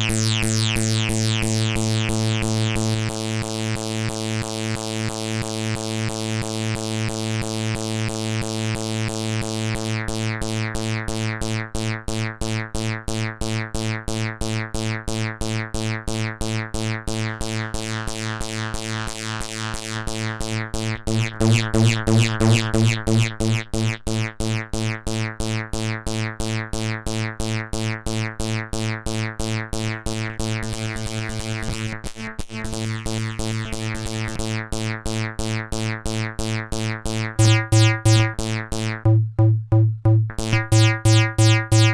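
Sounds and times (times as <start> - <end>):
synthesized bass pulses: 0.0 - 3.3, 20.8 - 24.4, 29.8 - 41.9.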